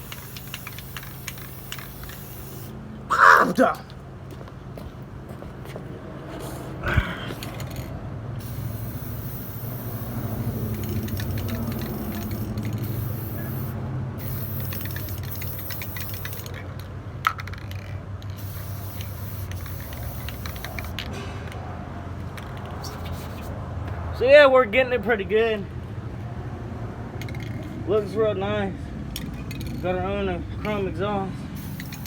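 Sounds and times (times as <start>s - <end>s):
spray can hissing: 0.0s - 2.8s, 8.4s - 16.5s, 18.4s - 21.0s, 31.6s - 32.0s.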